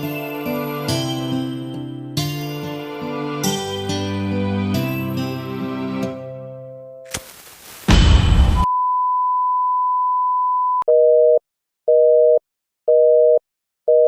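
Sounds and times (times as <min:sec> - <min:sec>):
loud hiss burst: 0:07.1 - 0:08.6
steady single-pitch beep: 0:08.7 - 0:14.0
telephone busy signal: 0:08.7 - 0:14.0.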